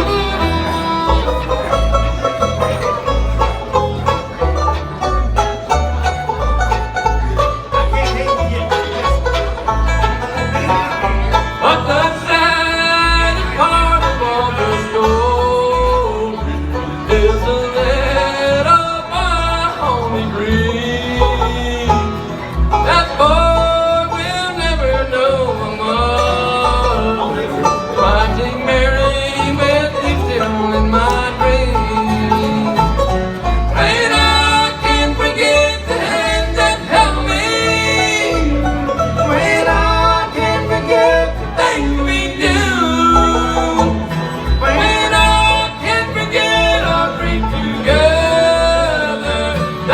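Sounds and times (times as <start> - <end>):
bluegrass band playing: 0.0 - 49.9
person singing: 11.6 - 49.9.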